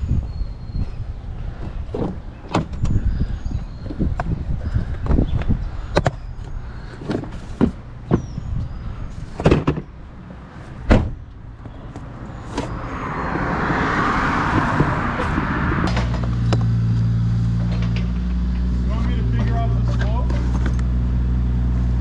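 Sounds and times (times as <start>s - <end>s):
engine humming: 0.0s - 22.0s
sharp knocks and clunks: 9.4s - 10.0s, 10.8s - 12.7s, 14.5s - 16.8s, 17.6s - 18.7s.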